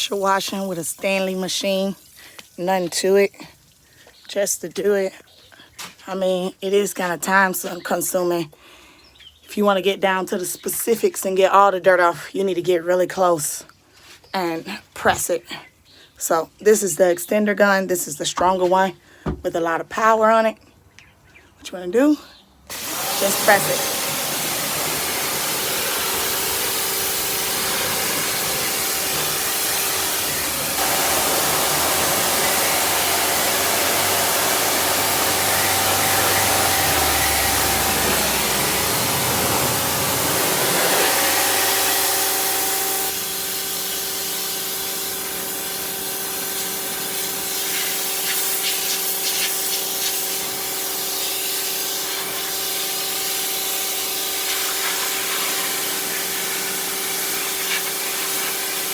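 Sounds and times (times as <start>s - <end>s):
water jet hissing on surface: 0.0s - 3.0s, 22.7s - 50.5s, 51.2s - 58.9s
pressure washer motor humming: 22.7s - 58.9s.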